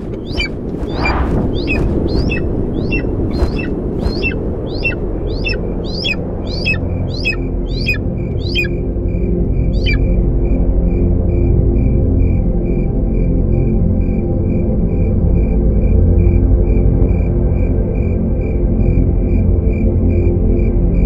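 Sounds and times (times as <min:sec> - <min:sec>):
bird calling falling chirps: 0:00.2 - 0:08.8, 0:09.7 - 0:10.0.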